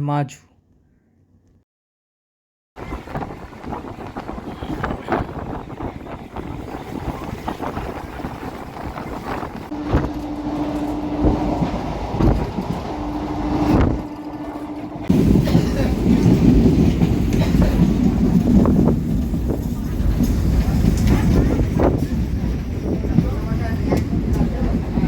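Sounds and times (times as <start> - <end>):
train rumble: 2.8 - 25.0.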